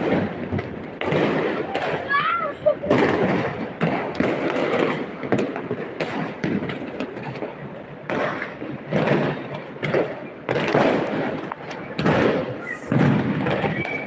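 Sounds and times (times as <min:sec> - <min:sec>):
fireworks bangs and pops: 0:00.0 - 0:14.0.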